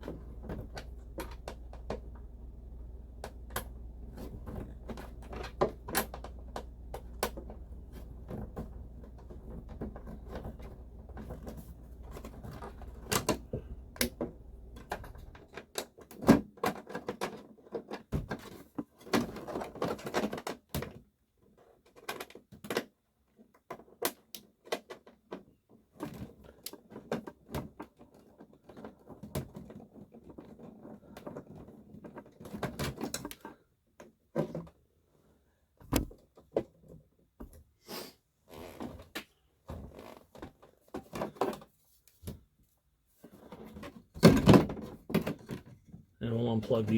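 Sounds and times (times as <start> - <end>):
low steady hum: 0.0 - 15.4.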